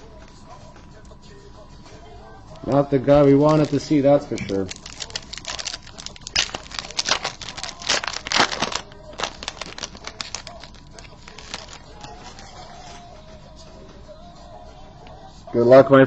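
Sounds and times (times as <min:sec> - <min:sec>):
card pack wrapper crinkling and tearing: 0:02.6 - 0:13.1.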